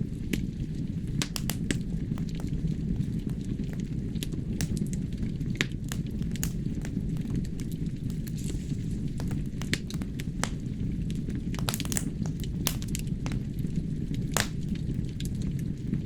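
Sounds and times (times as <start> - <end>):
burning logs crackling and popping: 0.0 - 16.0
low rumble of flames: 0.0 - 16.0.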